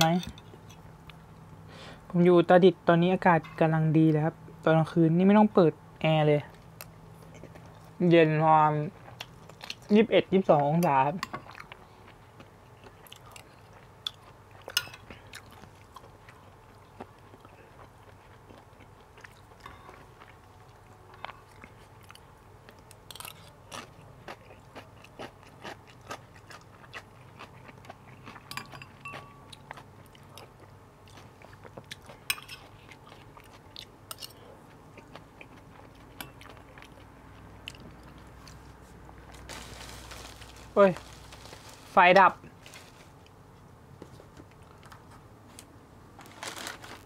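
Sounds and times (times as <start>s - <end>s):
person chewing food: 11.3s - 43.4s.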